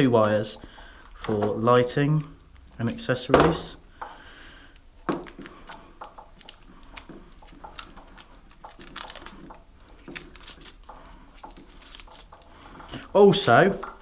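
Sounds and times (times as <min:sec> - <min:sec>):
plastic tape and wires rustling: 0:00.0 - 0:04.0, 0:04.7 - 0:14.0
wires clicking: 0:00.0 - 0:14.0.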